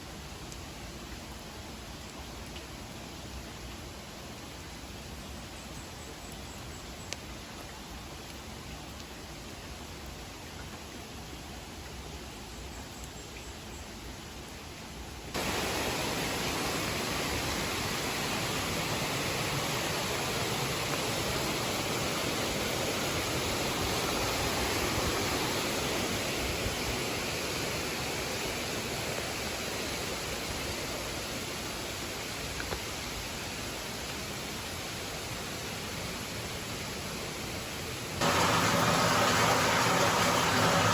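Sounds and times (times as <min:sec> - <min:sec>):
flowing water rushing: 0:15.3 - 0:40.9.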